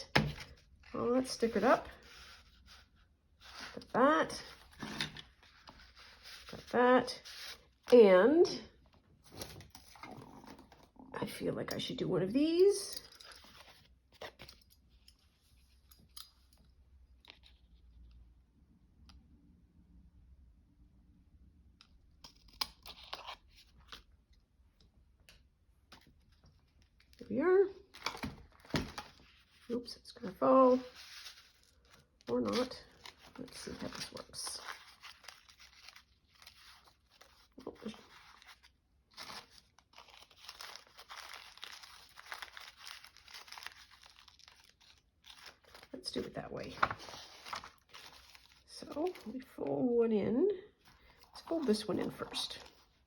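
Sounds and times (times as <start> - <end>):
paper rustling and crinkling: 1.9 - 7.9, 13.2 - 15.7, 27.9 - 49.7.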